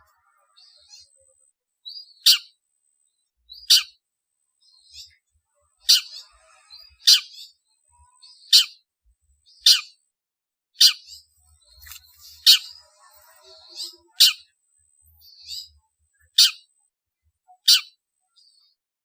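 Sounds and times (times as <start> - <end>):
faint bird chatter: 0.0 - 18.8.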